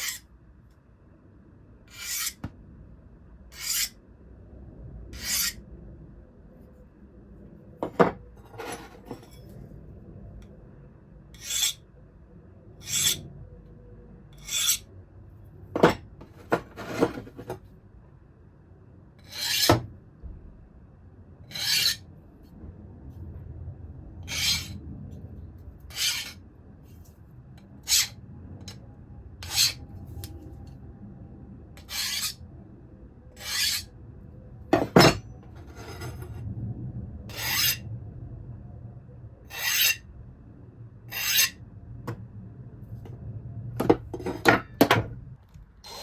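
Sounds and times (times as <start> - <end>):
file rasping on steel blade: 0.0 - 0.3, 1.9 - 2.4, 3.5 - 4.0, 5.2 - 5.6, 11.4 - 11.8, 12.8 - 13.2, 14.4 - 14.9, 19.2 - 19.8, 21.5 - 22.0, 24.3 - 24.8, 25.9 - 26.4, 27.8 - 28.8, 29.4 - 29.8, 31.8 - 32.4, 33.4 - 33.9, 37.3 - 37.8, 39.5 - 40.0, 41.1 - 41.6.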